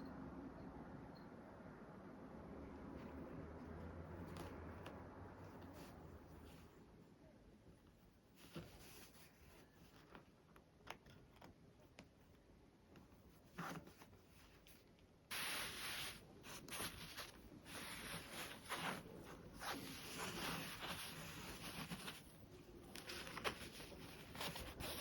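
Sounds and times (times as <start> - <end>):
rasping rustling fabric strokes: 13.4 - 25.0.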